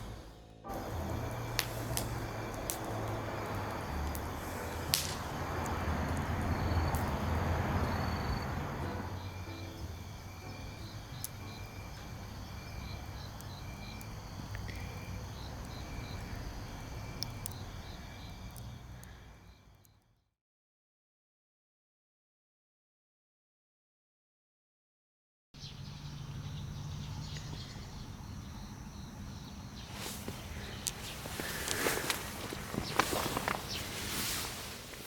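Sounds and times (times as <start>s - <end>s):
campfire crackling: 0.0s - 19.5s, 28.0s - 35.0s
crickets chirping: 0.0s - 19.9s, 25.6s - 35.0s
low background noise: 25.6s - 35.0s.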